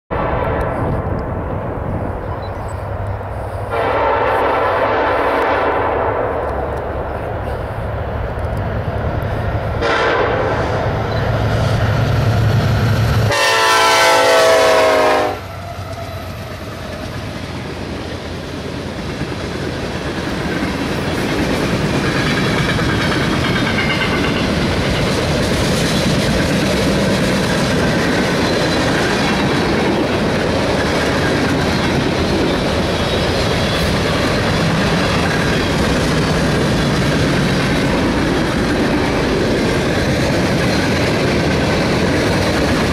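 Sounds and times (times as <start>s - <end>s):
locomotive horn blast: 3.7s - 6.4s, 9.8s - 11.1s, 13.3s - 16.3s
train wheels clacking over rail joints: 15.9s - 42.9s.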